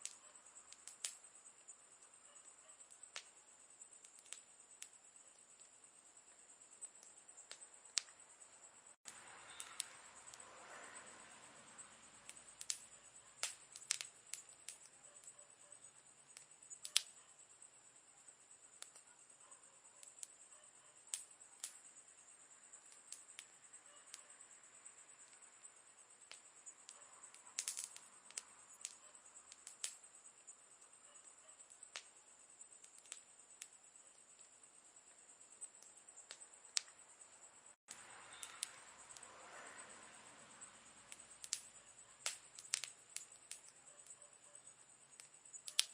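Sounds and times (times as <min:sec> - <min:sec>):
burning wood popping: 0:00.0 - 0:01.2, 0:04.0 - 0:08.2, 0:09.0 - 0:10.4, 0:12.2 - 0:15.4, 0:16.3 - 0:17.2, 0:18.7 - 0:19.1, 0:21.0 - 0:21.9, 0:26.2 - 0:30.5, 0:31.2 - 0:37.0, 0:37.9 - 0:39.3, 0:41.1 - 0:44.2, 0:45.1 - 0:45.9
campfire crackling: 0:00.0 - 0:45.9.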